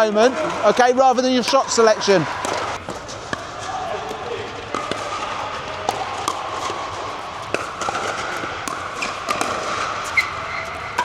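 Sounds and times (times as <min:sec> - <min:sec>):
ball bouncing on court: 0:00.0 - 0:11.0
paddles popping against ball: 0:01.4 - 0:11.0
shoes squeaking on floor: 0:08.2 - 0:11.0.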